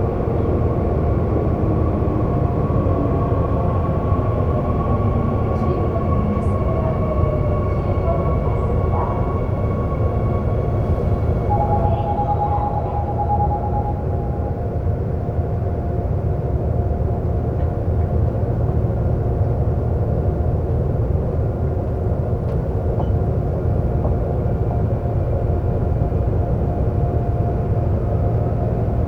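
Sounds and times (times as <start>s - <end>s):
subway train wheels rumbling: 0.0s - 29.0s
faint steady whine: 10.9s - 15.0s
higher tone: 11.4s - 14.8s.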